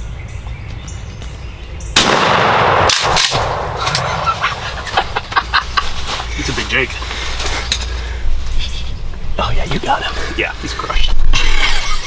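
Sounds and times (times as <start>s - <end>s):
shotgun blast: 2.0s - 4.4s
clicks and rustling: 3.0s - 5.4s.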